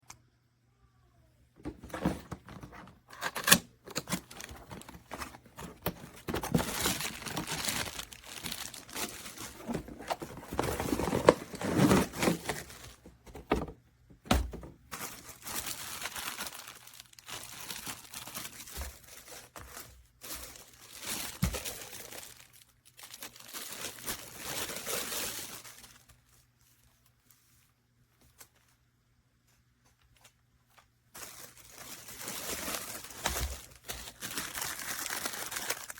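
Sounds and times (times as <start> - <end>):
packaging crinkling and tearing: 1.8 - 13.0, 14.9 - 26.3, 31.1 - 35.9.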